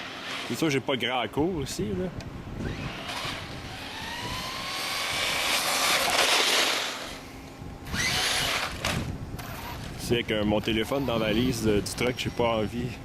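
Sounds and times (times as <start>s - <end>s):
electric motor whining: 2.6s - 12.6s.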